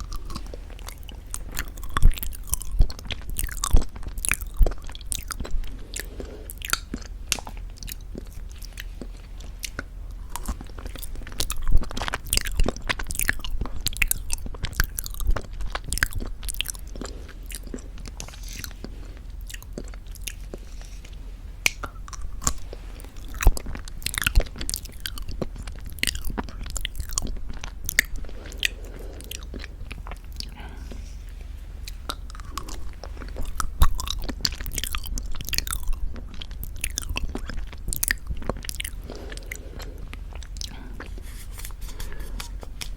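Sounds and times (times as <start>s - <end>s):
wet chewing and swallowing: 0.0s - 42.9s.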